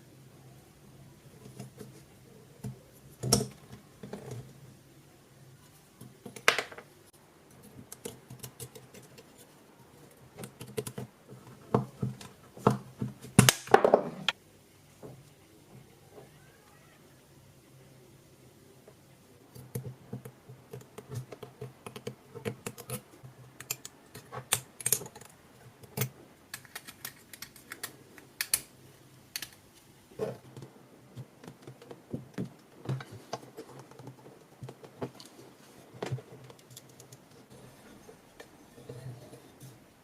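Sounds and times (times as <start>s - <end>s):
small parts clicking and tapping: 7.5s - 13.8s, 19.5s - 29.6s, 36.0s - 37.4s.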